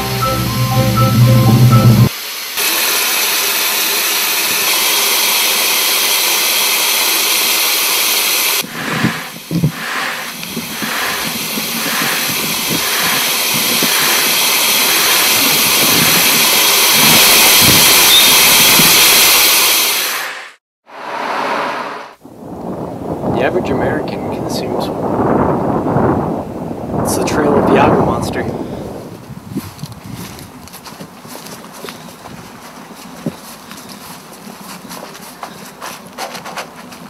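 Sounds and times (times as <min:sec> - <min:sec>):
loud steady hiss: 0:00.0 - 0:22.2.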